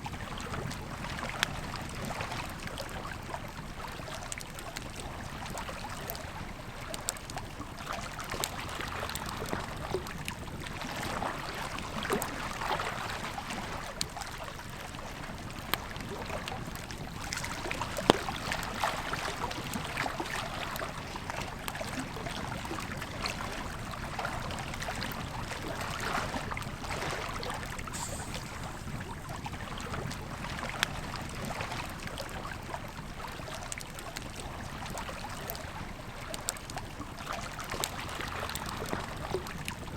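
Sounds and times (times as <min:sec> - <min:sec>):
river flowing: 0:16.1 - 0:30.8
campfire crackling and popping: 0:27.6 - 0:35.6.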